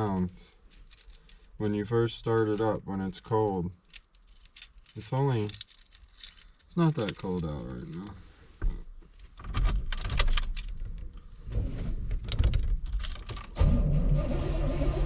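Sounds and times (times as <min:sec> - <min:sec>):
keys jangling and clicking: 0:00.0 - 0:02.8, 0:03.4 - 0:08.2, 0:09.1 - 0:11.0, 0:12.7 - 0:13.6
car engine starting and idling: 0:13.5 - 0:15.0.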